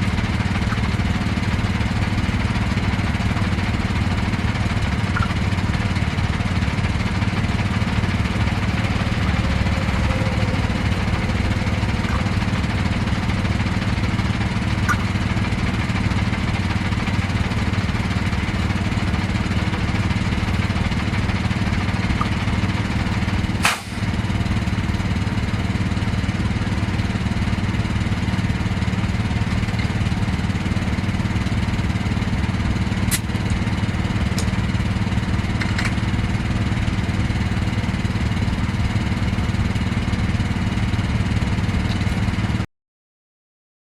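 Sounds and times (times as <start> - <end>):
engine idling: 0.0 - 42.6
sharp click: 23.6 - 24.0.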